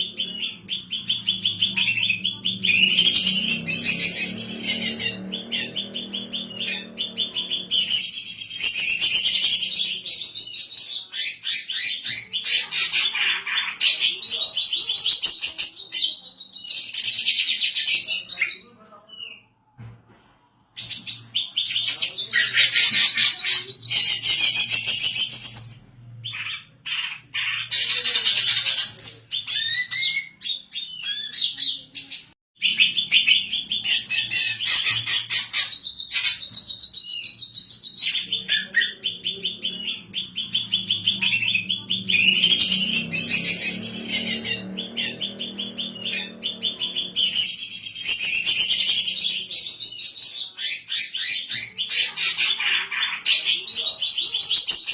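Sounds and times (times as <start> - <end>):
bird singing high chirps: 0.0 - 12.8.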